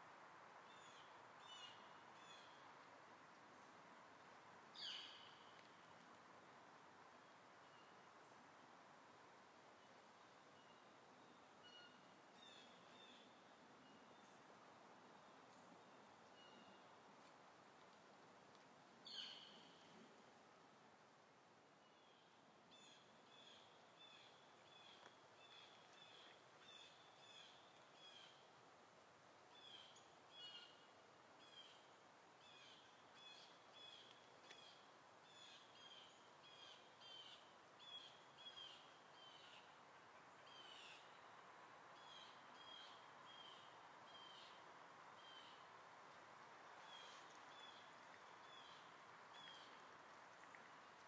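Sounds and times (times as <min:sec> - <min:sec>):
background hiss: 0:00.0 - 0:51.0
faint bird chirping: 0:04.8 - 0:05.7, 0:15.1 - 0:17.0, 0:19.0 - 0:20.0, 0:21.8 - 0:28.5, 0:29.5 - 0:41.4, 0:42.0 - 0:45.7, 0:46.8 - 0:50.6.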